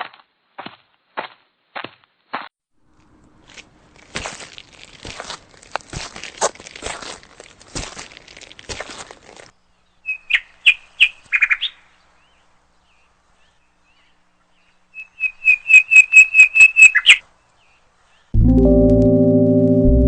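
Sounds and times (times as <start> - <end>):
bird chirping: 9.6 - 18.4
loud music with gong tones: 18.4 - 20.0.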